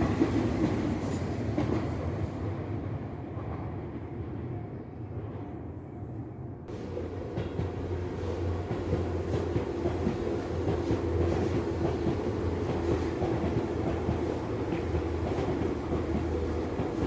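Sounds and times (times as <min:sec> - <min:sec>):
train low hum: 0:00.0 - 0:17.0
train wheels clicking over rail joints: 0:06.8 - 0:17.0.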